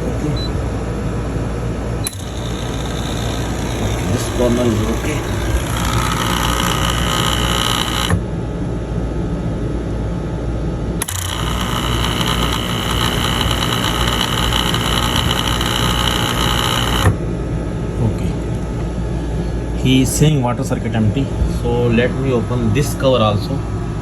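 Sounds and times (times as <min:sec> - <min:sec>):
coffee machine pump buzzing: 0:00.0 - 0:08.4, 0:11.0 - 0:17.2.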